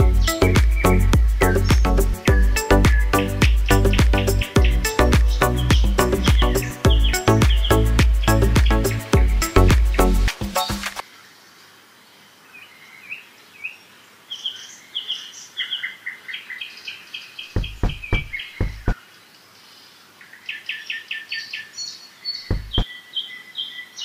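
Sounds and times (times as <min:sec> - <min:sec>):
birds chirping: 0:00.0 - 0:11.7, 0:12.5 - 0:24.0
dull knocks: 0:17.6 - 0:19.0, 0:22.5 - 0:22.8.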